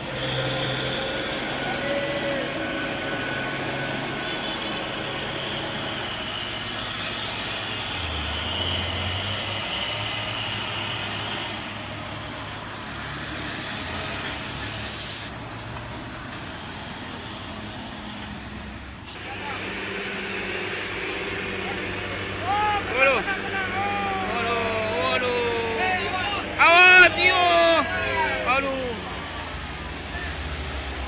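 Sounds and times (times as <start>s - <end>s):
diesel machinery engine running: 0.0s - 31.0s
broad hiss: 12.8s - 15.3s.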